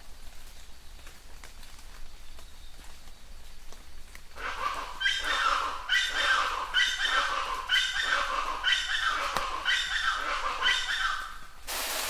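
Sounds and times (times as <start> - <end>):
faint rain hiss: 0.0 - 6.8, 9.3 - 12.0.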